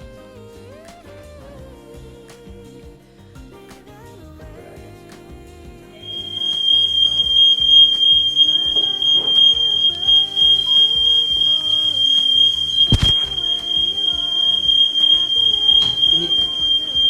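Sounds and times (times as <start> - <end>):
background music: 0.0 - 17.0
smoke alarm tone: 6.0 - 17.0.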